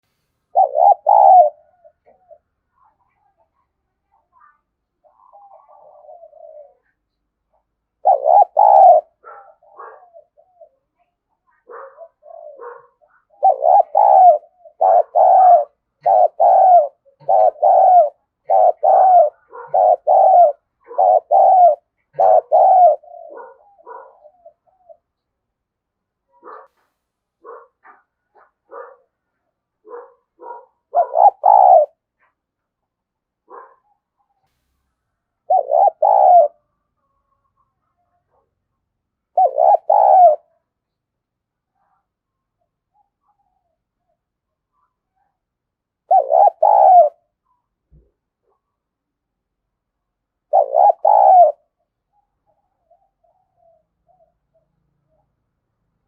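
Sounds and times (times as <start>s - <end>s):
doves cooing: 0.5s - 3.5s, 4.1s - 25.1s, 29.8s - 32.3s, 35.4s - 38.5s, 39.3s - 40.6s, 46.1s - 47.4s, 50.5s - 55.2s.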